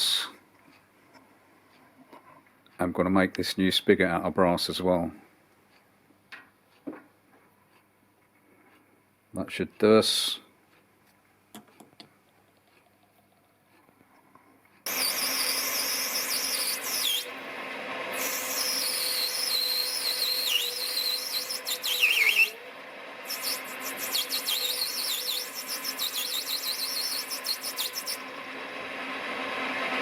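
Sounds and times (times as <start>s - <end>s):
steady machine hum: 14.8s - 30.0s
lathe cutting metal squealing: 14.9s - 17.3s, 18.2s - 22.6s, 23.3s - 28.3s.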